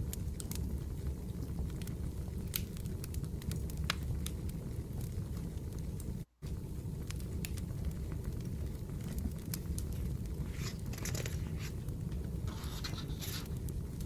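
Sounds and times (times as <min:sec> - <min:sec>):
firewood crackling and popping: 0:00.0 - 0:14.0
low fire rumble: 0:00.0 - 0:14.0
scratchy noise bursts: 0:12.4 - 0:13.6.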